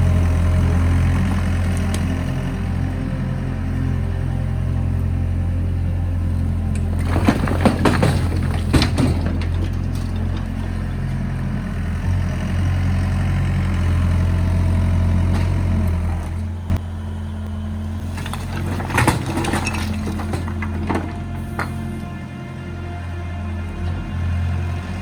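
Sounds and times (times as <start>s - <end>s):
excavator diesel engine under load: 0.0s - 25.0s
clatter of impacts: 6.8s - 10.7s, 18.2s - 21.8s.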